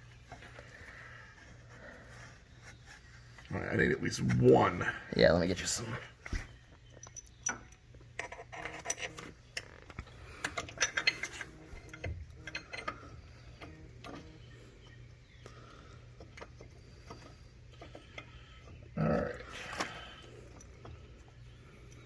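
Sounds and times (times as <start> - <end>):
bolts and tools clinking: 5.6 - 14.4.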